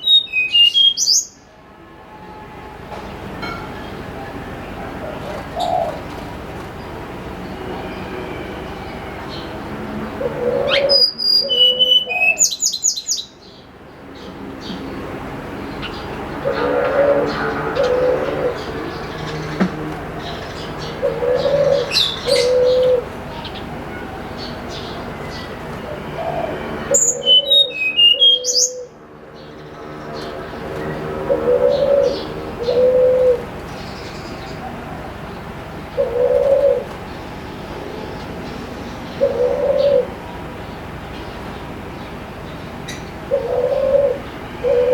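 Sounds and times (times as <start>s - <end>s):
songbird singing whistled notes: 0.0s - 1.4s, 10.7s - 13.3s, 26.9s - 28.9s.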